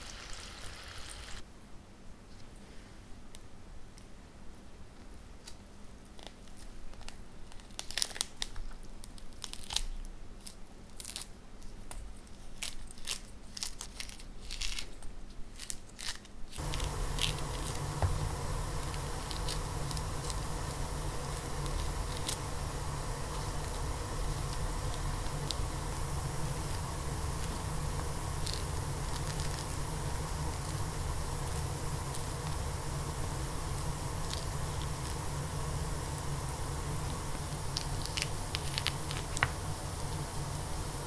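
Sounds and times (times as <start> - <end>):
steady background hiss: 0.0 - 41.0
citrus peel tearing: 7.0 - 11.3, 12.4 - 31.0, 37.7 - 39.6.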